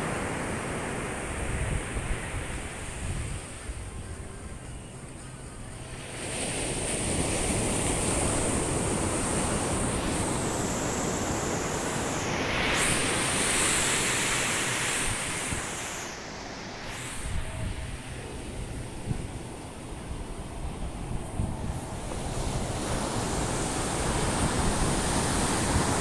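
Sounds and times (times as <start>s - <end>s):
sea waves breaking on beach: 5.8s - 26.0s.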